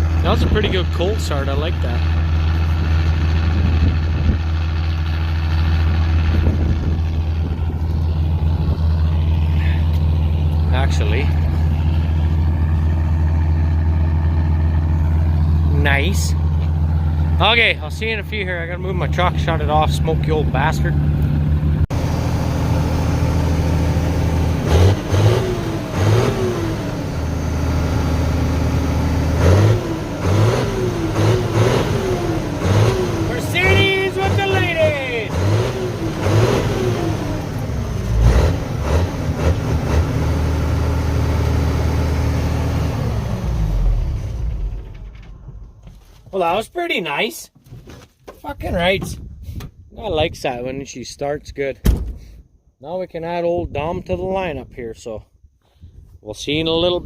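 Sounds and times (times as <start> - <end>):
large engine idling: 0.0 - 24.6.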